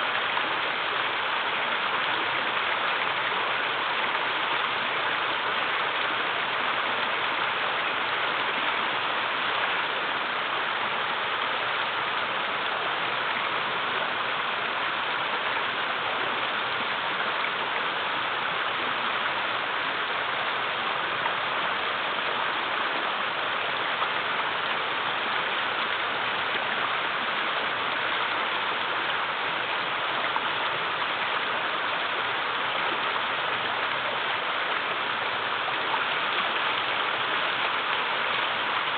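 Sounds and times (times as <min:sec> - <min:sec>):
river rushing over small waterfalls: 0:00.0 - 0:38.9.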